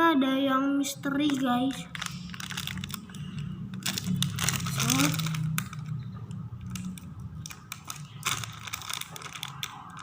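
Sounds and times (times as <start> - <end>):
packaging crinkling and tearing: 1.2 - 10.0.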